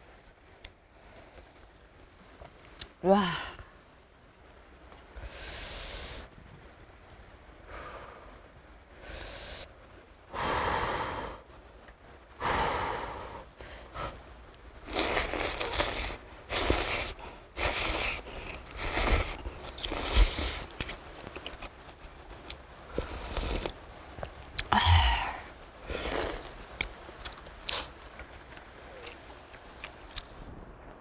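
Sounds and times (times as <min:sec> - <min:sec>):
noodles being slurped: 0:14.8 - 0:24.8, 0:25.8 - 0:30.0.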